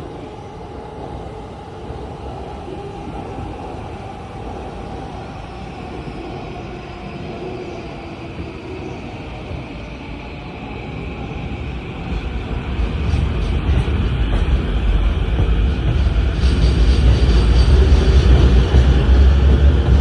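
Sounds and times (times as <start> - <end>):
train wheels rumbling: 8.9 - 20.0.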